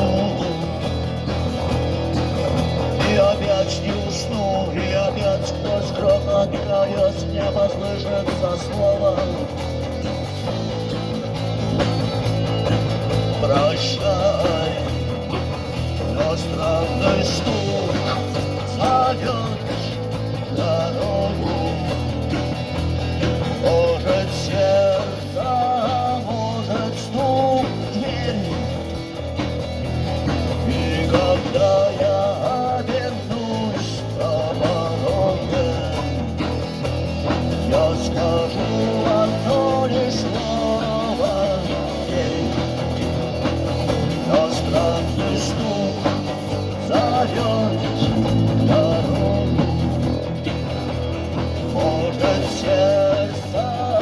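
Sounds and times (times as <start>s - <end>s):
drums: 0.0s - 54.0s
guitars: 0.0s - 54.0s
steady bass line: 0.0s - 54.0s
wavering lead melody: 47.6s - 51.8s.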